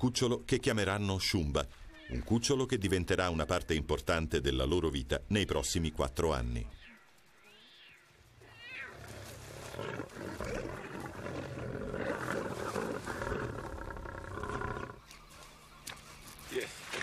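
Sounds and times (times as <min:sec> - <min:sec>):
lion growling: 0:08.9 - 0:15.0.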